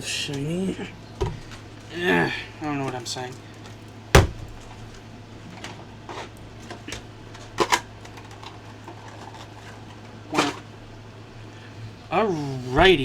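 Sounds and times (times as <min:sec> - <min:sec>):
low steady hum: 0:04.1 - 0:06.7.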